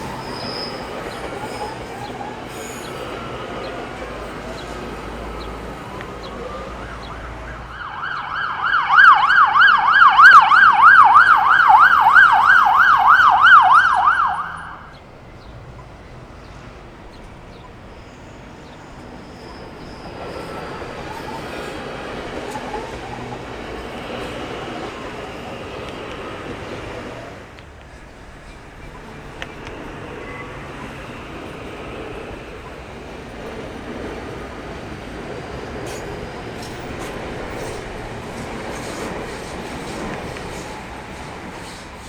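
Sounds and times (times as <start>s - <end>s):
traffic noise: 0.0s - 42.0s
siren yelping: 5.7s - 15.0s.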